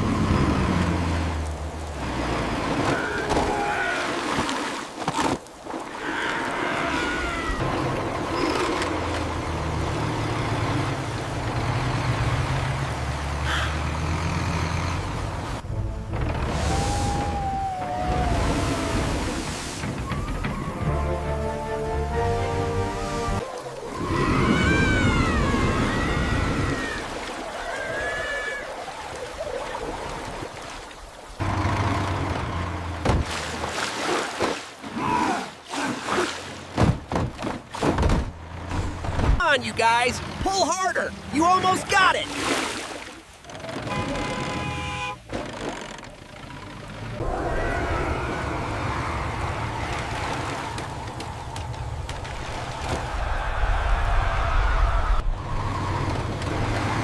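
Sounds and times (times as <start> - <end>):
heavy vehicle engine rumbling: 7.6 - 22.8
water sloshing: 41.9 - 46.3, 48.5 - 53.5.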